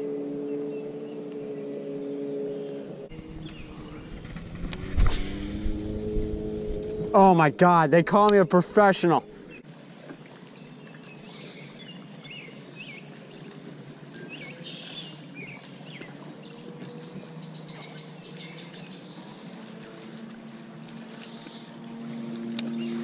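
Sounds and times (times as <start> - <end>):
small birds chirping: 2.5 - 4.5, 10.6 - 13.6, 14.2 - 20.2
low background rush: 2.9 - 9.6
faint low hum: 3.1 - 9.6.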